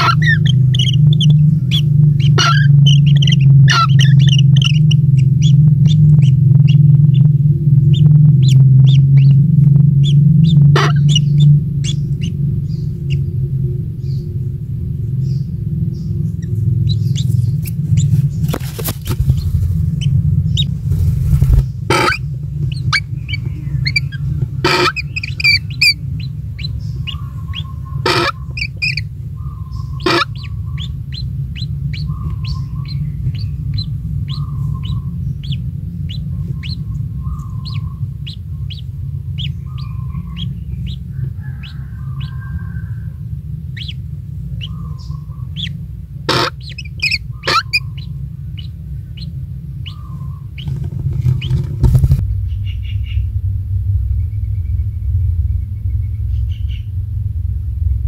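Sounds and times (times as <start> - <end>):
birds chirping: 0.0 - 53.3, 54.1 - 56.9
lower bird call: 0.0 - 53.4, 54.0 - 57.0
steady low rumble: 0.0 - 58.0
sharp knocks: 50.6 - 52.2.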